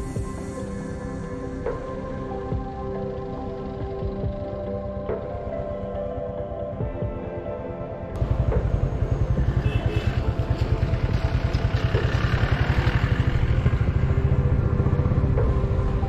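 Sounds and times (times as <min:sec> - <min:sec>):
motorcycle engine running: 0:08.2 - 0:16.0
rushing road noise: 0:08.2 - 0:16.0.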